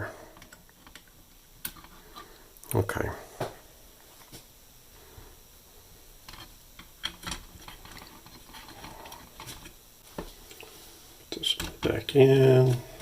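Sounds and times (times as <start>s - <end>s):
small parts clicking and rustling: 0.3s - 2.7s, 6.2s - 9.8s.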